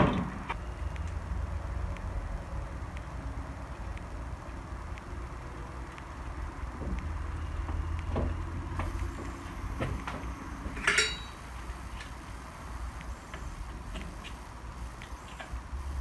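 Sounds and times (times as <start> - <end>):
tools clicking and knocking: 9.9 - 11.4
metal clink ringing: 10.8 - 11.5.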